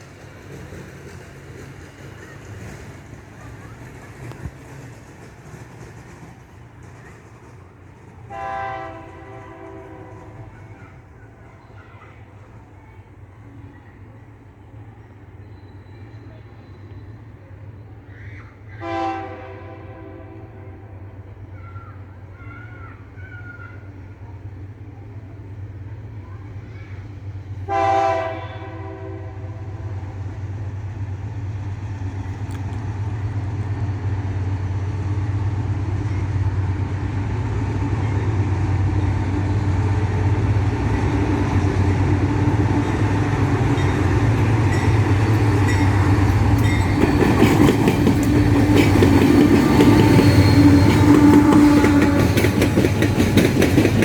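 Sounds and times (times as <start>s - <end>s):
wheel and wagon clatter: 0.0s - 8.3s, 42.7s - 54.0s
locomotive engine rumble: 0.0s - 54.0s
train horn: 8.3s - 10.8s, 18.8s - 21.3s, 27.6s - 30.4s, 43.0s - 53.7s.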